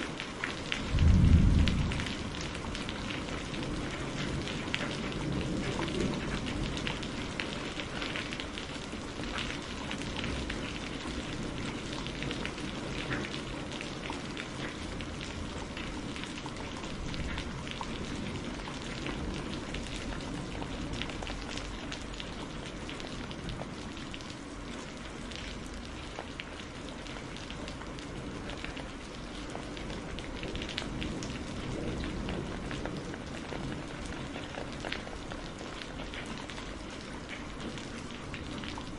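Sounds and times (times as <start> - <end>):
rain pattering: 0.0 - 38.9
low rumble: 0.9 - 2.7.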